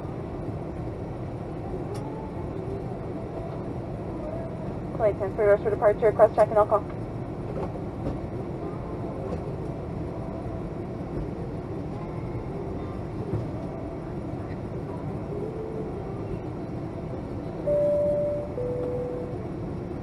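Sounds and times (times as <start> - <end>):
airliner cabin rumble: 0.0 - 20.0
cabin chime tone: 17.7 - 19.3.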